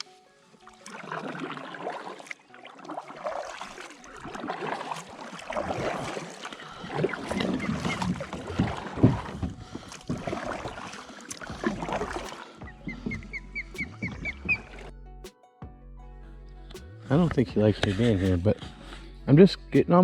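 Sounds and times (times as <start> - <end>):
kayak splashing through water: 0.0 - 14.9.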